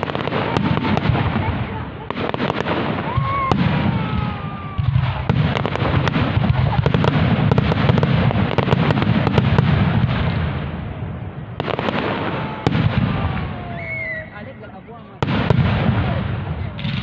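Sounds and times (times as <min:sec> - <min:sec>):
fireworks bangs and crackles: 0:00.0 - 0:17.0
deep rumble of booms: 0:15.2 - 0:17.0.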